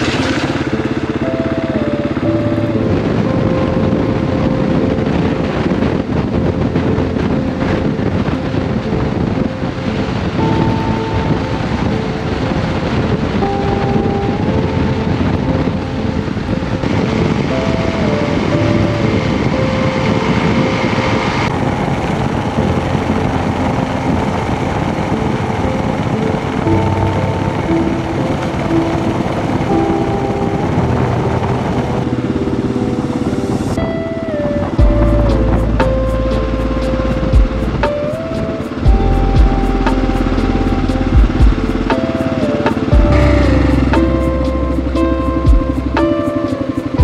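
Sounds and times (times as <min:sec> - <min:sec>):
motorcycle engine running: 0:00.0 - 0:04.2, 0:34.8 - 0:47.0
wind on microphone: 0:00.0 - 0:47.0.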